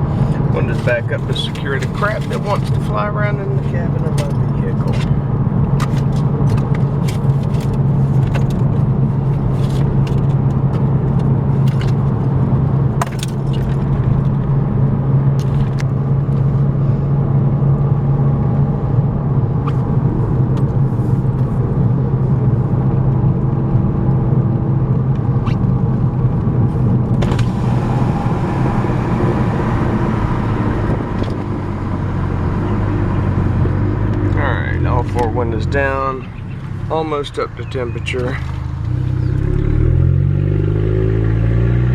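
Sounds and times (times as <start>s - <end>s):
car exhaust droning: 18.8s - 41.9s.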